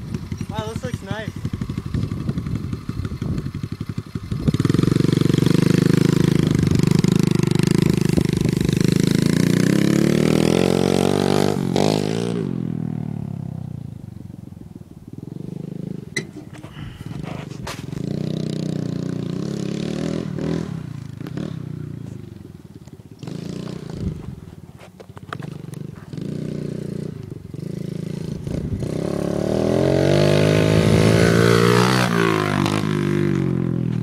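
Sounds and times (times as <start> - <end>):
pit bike engine running: 0.0 - 13.5.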